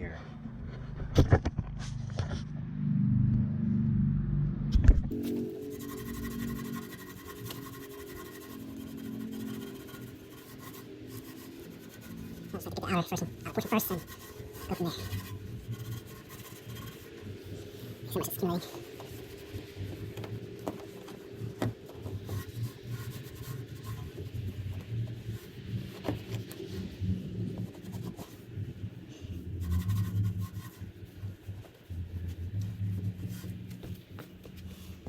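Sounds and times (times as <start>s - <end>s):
cloth scrubbing metal: 5.1s - 27.0s, 29.4s - 35.0s.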